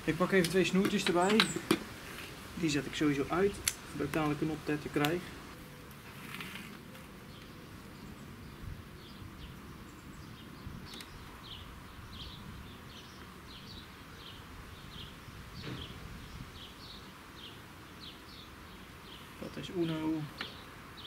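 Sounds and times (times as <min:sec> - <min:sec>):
small bird chirping: 0:07.3 - 0:21.0
wind rumble on microphone: 0:08.4 - 0:17.0.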